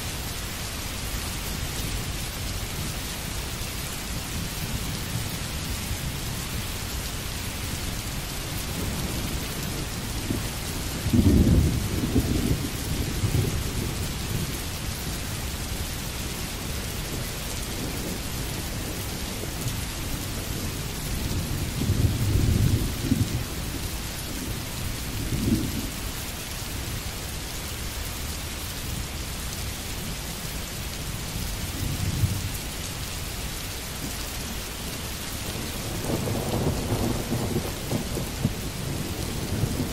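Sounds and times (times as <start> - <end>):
steady rain: 0.0 - 39.9
low rolls of thunder: 8.6 - 14.7, 16.6 - 26.0, 35.5 - 39.9.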